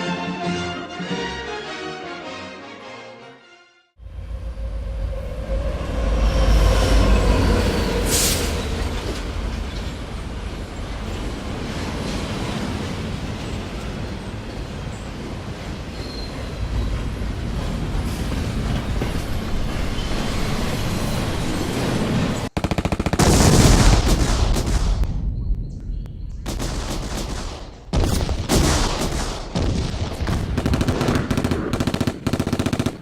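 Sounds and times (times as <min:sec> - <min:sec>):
train rumbling: 0:04.0 - 0:22.6
machine-gun fire bursts: 0:22.6 - 0:25.0, 0:26.5 - 0:33.0.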